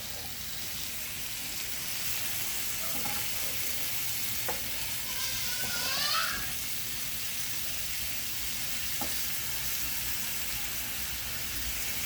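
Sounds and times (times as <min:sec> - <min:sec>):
chicken sizzling on a grill: 0:00.0 - 0:12.0.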